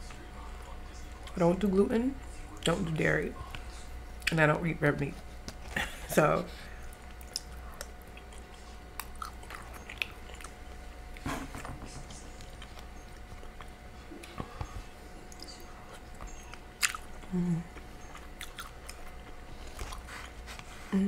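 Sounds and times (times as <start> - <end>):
person chewing food: 5.3 - 20.9.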